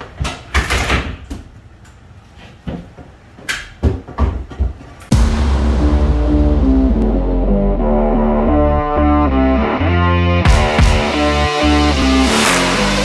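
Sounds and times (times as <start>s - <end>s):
loud music: 5.1s - 13.0s.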